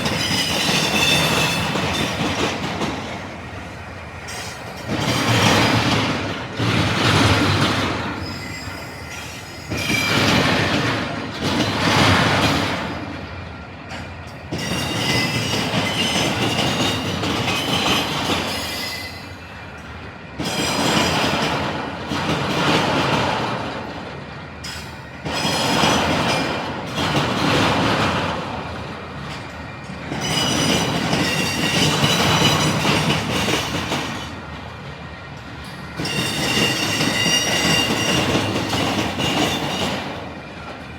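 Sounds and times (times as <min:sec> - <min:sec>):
steel wheel squeal: 0:00.0 - 0:02.2, 0:08.2 - 0:10.4, 0:14.6 - 0:17.0, 0:17.6 - 0:19.4, 0:36.0 - 0:38.6
train wheels banging over crossing: 0:00.0 - 0:03.4, 0:04.2 - 0:13.2, 0:13.9 - 0:19.3, 0:20.4 - 0:34.5, 0:35.6 - 0:40.8.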